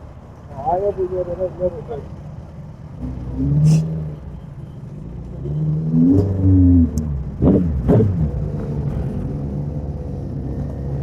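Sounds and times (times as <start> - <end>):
motorcycle engine revving: 5.4 - 11.0.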